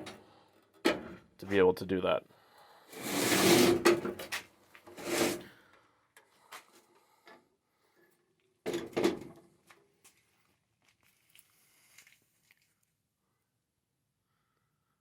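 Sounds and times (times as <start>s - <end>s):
metal bandsaw scraping clunks: 3.0s - 4.2s.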